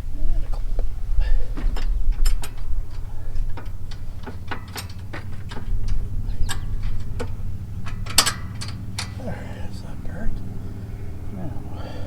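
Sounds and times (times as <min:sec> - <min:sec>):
low steady hum: 0:00.0 - 0:12.0
sharp metal clicks and taps: 0:01.6 - 0:09.2.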